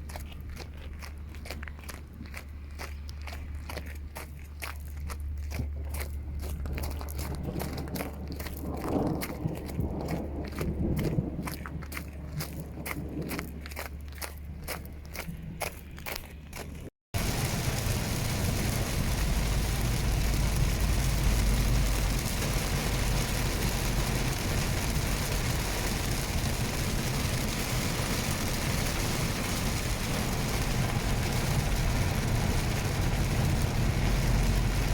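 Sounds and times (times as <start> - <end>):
heavy rain pouring: 17.2 - 34.9.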